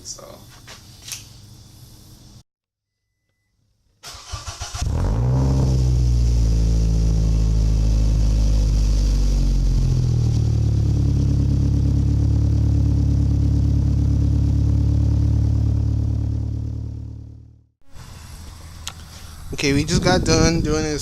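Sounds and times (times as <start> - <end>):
car engine idling: 5.8 - 17.6.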